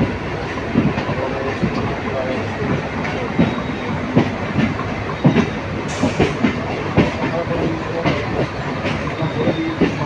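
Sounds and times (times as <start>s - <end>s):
moving train rumble: 0.0s - 10.0s
train wheels clacking over rail joints: 0.0s - 10.0s.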